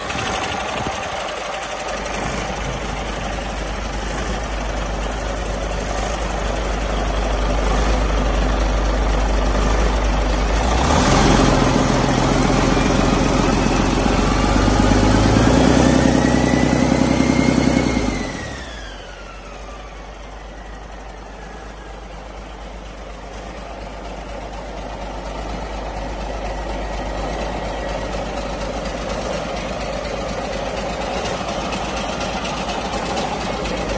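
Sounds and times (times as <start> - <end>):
diesel engine revving with whine: 0.0 - 22.6.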